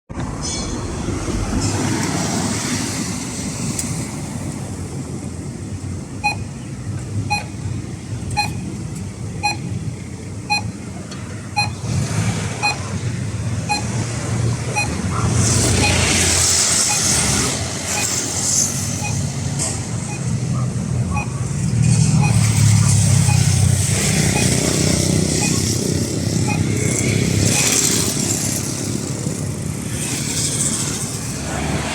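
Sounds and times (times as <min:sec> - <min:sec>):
road traffic: 0:00.1 - 0:31.9
pedestrian crossing signal beeping: 0:05.4 - 0:28.8.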